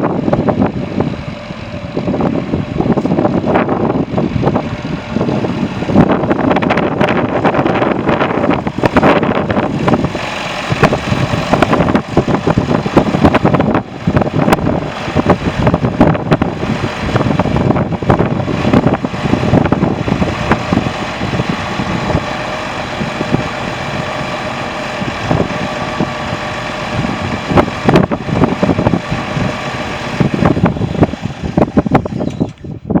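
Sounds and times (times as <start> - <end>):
tractor diesel engine running: 0.0 - 33.0
wind buffeting microphone: 0.0 - 33.0.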